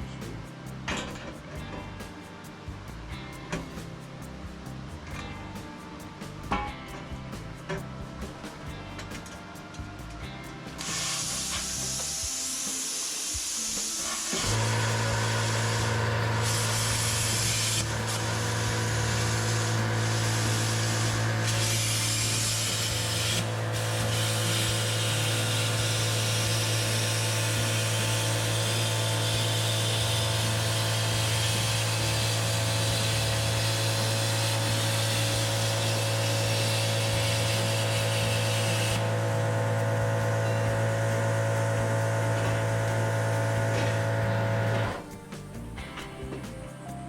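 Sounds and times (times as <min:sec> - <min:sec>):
plasma arc and air jet hissing: 0:10.8 - 0:45.5.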